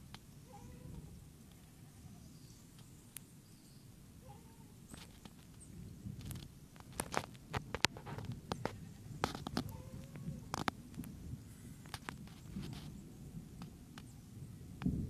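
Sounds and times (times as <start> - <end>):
low rumble of volcanic eruption: 0.0 - 15.0
faint chirps: 0.1 - 6.1.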